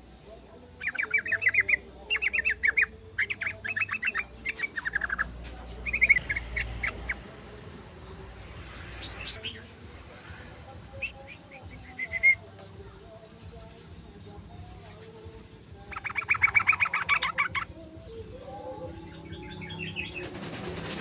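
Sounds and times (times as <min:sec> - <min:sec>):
bulbul bubbly chattering song: 0:00.8 - 0:07.3, 0:15.8 - 0:20.4.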